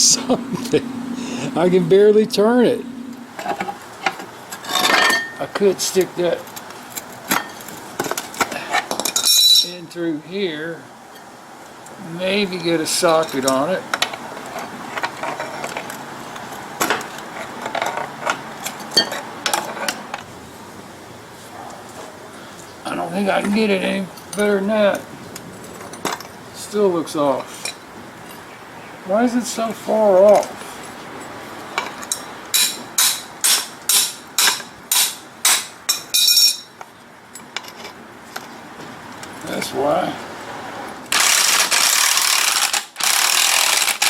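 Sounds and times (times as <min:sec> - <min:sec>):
metal hand tools clinking: 0:08.7 - 0:09.8, 0:31.8 - 0:36.8
hammer striking metal: 0:32.6 - 0:36.7.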